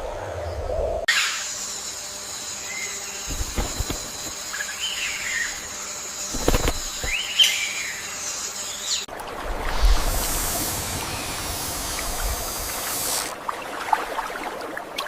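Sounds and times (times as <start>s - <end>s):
steady high-pitched hiss: 1.2s - 13.3s
birds chirping: 2.7s - 9.1s.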